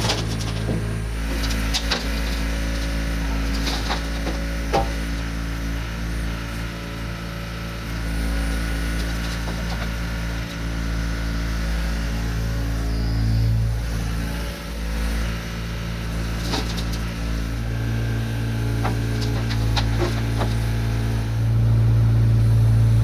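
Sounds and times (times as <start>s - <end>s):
truck engine idling: 0.0s - 12.8s, 16.0s - 23.0s
wooden knocks and clunks: 3.2s - 5.2s, 18.7s - 20.9s.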